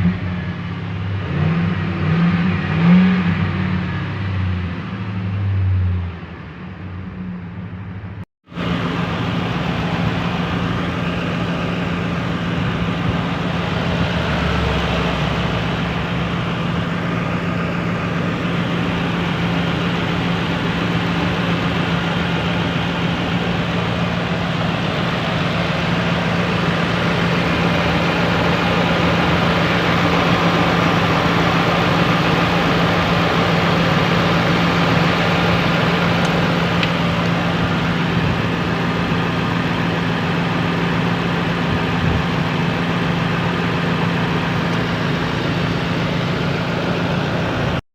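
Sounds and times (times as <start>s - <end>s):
truck engine idling: 6.1s - 47.8s.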